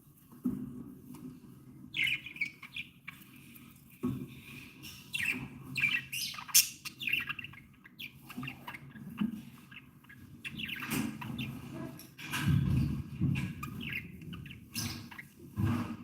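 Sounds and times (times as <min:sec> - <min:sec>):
budgerigars chattering: 0:01.9 - 0:03.2, 0:04.5 - 0:12.0, 0:13.4 - 0:15.3.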